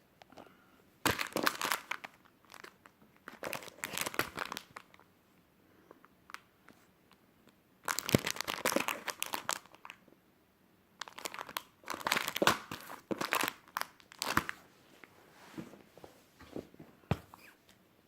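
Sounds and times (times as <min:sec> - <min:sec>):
plastic packaging crinkling: 0:01.1 - 0:05.0, 0:07.8 - 0:10.0, 0:11.0 - 0:14.6.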